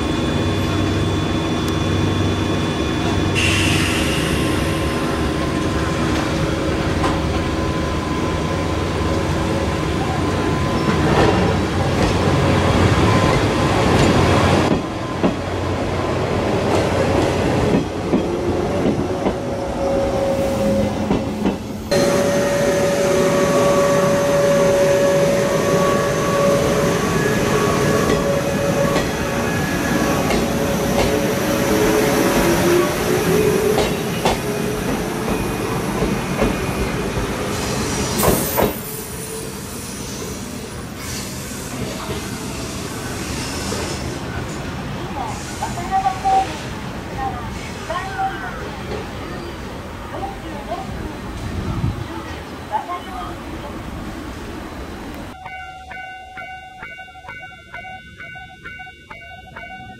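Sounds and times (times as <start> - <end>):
electric train running past: 0.0 - 59.9
train motor whine: 21.9 - 33.7.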